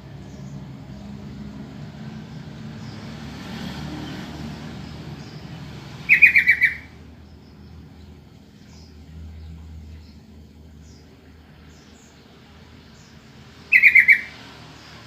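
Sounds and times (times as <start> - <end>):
bird chattering notes: 6.0 - 7.0, 13.7 - 14.4.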